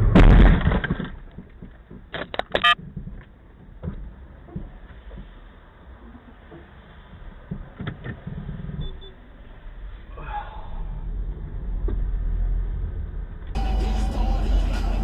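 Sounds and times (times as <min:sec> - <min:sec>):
car driving low rumble: 0:00.0 - 0:15.0.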